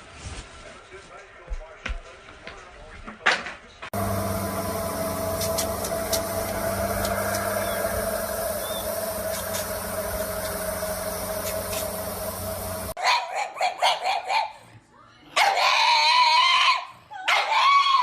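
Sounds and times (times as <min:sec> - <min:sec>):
motor hum: 0:04.0 - 0:13.0.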